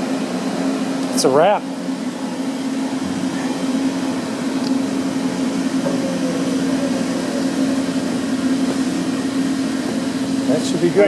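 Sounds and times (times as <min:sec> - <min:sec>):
low machinery hum: 0:00.0 - 0:11.0
faint falling whine: 0:01.9 - 0:10.4.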